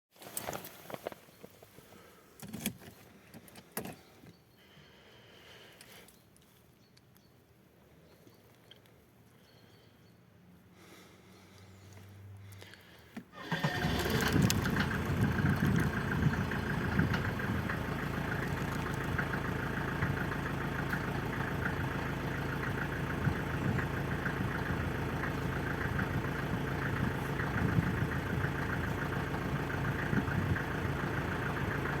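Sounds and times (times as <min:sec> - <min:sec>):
diesel engine starting and idling: 0:12.4 - 0:32.0.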